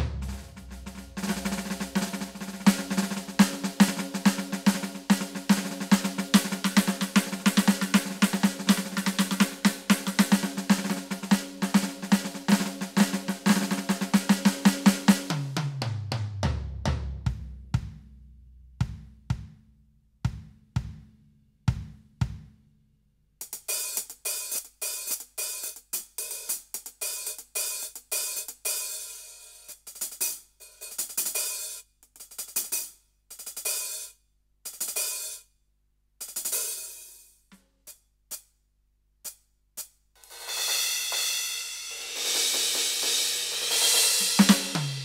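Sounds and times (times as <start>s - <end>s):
cymbal and hi-hat strikes: 0.0s - 15.8s, 23.4s - 35.5s, 36.2s - 38.5s, 39.2s - 45.0s.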